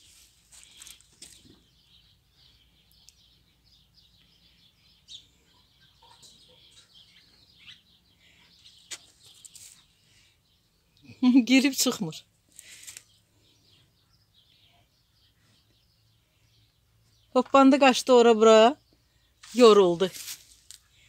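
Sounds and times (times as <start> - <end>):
faint bird chirps: 0.6 - 11.4.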